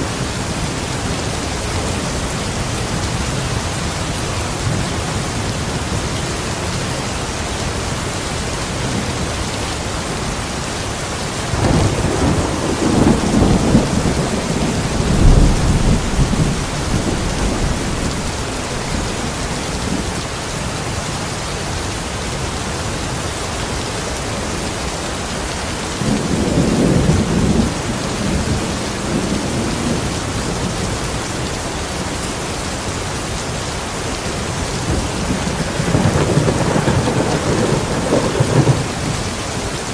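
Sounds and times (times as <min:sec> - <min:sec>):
heavy rain: 0:00.0 - 0:39.9
thunder rumbling: 0:11.5 - 0:20.2, 0:26.0 - 0:32.4, 0:34.3 - 0:39.9.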